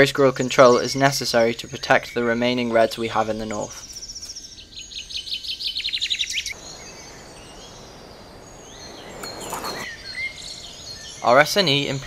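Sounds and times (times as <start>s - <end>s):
faint bird chirps: 3.4s - 12.0s
songbird singing falling notes: 3.4s - 12.0s.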